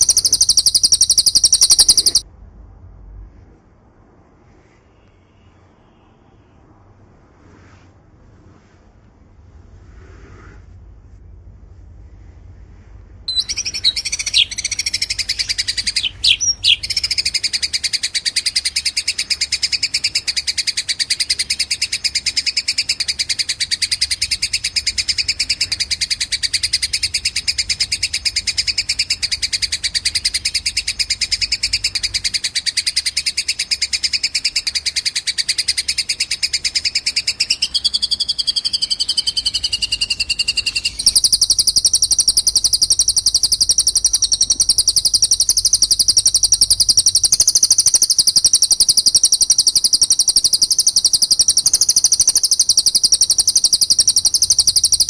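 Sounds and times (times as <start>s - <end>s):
rapid high bird trill: 0.0s - 2.2s, 13.3s - 55.0s
sharp bird calls: 0.0s - 2.3s, 13.3s - 55.0s.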